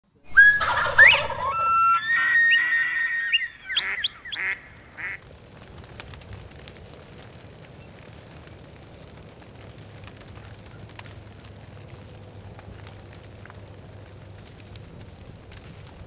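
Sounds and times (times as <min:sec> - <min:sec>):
fire crackling: 0:00.1 - 0:16.0
birds calling: 0:00.3 - 0:05.2.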